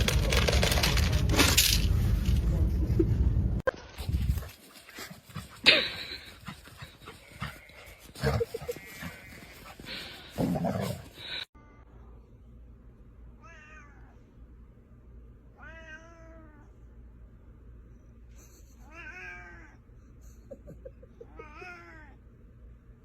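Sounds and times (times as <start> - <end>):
cat meowing: 15.6 - 16.6.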